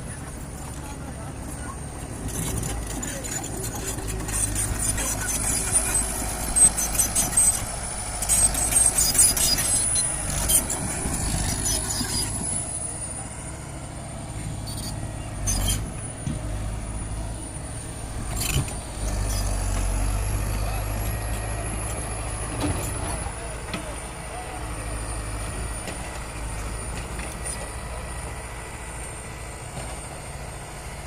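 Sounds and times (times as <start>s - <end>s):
heavy machinery engine rumble: 0.0s - 31.0s.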